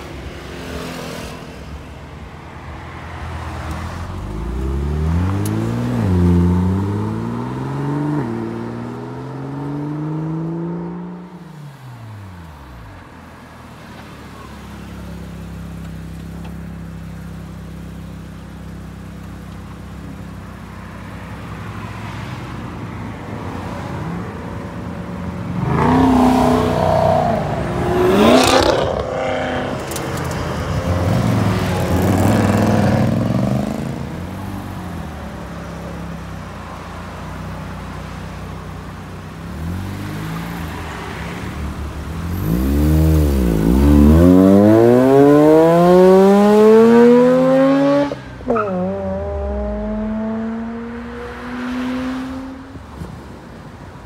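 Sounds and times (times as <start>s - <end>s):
car revving and accelerating: 4.0s - 11.4s, 25.4s - 34.4s, 39.4s - 52.9s
car engine accelerating hard: 41.9s - 52.7s.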